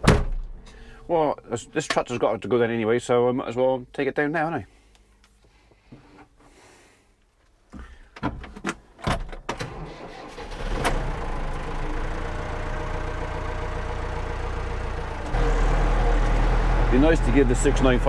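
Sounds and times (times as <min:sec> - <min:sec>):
diesel tractor engine starting: 0:09.6 - 0:18.0.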